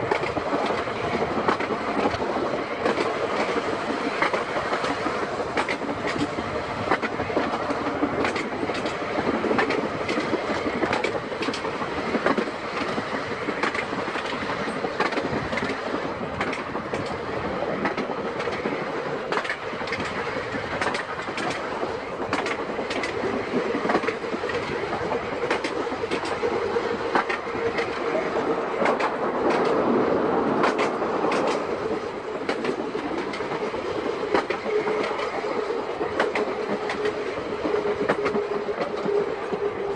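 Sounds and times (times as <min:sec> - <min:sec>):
tram wheels clicking on rail joints: 0:00.0 - 0:39.9.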